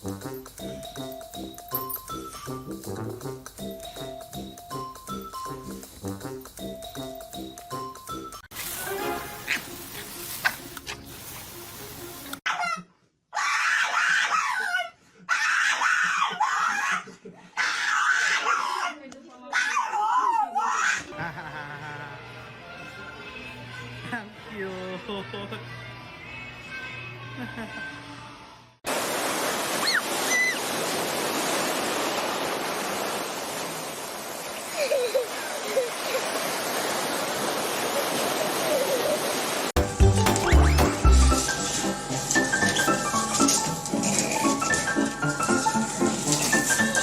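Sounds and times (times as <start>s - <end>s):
high-pitched screaming cries: 12.5s - 19.0s, 19.6s - 21.1s, 29.8s - 30.7s
short burst of music: 39.8s - 42.9s.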